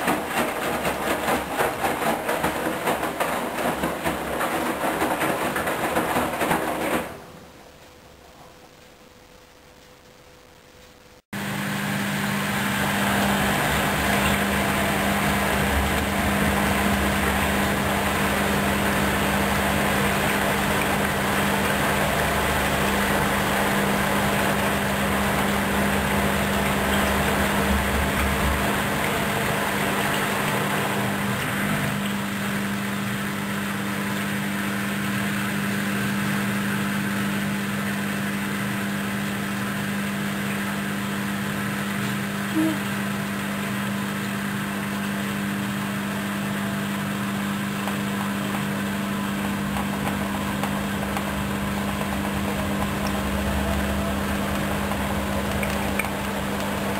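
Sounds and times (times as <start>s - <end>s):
washing machine motor whir: 0.0s - 8.9s, 11.3s - 56.9s
deep drum rumble: 13.0s - 31.2s.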